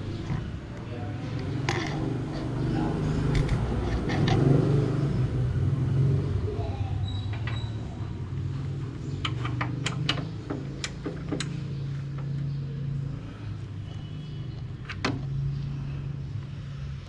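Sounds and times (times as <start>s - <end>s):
sharp clicks and knocks: 0.2s - 2.5s, 3.2s - 4.6s, 9.1s - 12.5s.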